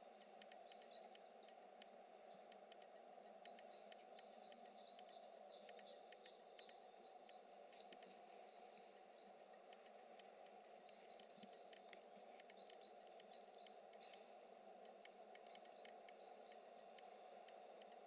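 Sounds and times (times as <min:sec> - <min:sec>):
faint small bird chirps: 0:00.0 - 0:18.0
light clicks: 0:00.0 - 0:18.0
steady background hiss: 0:00.0 - 0:18.0.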